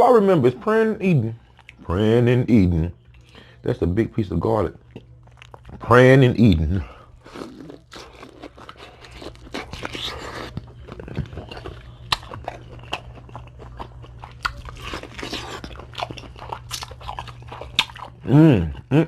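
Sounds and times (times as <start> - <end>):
steady low hum: 0.0 - 19.0
crunchy biting and chewing: 4.8 - 18.9.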